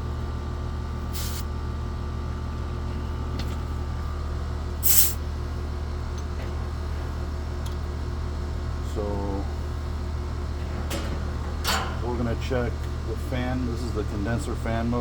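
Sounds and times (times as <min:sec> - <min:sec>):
air conditioner unit humming: 0:00.0 - 0:15.0
refrigerant hissing: 0:01.1 - 0:01.5, 0:04.8 - 0:05.2.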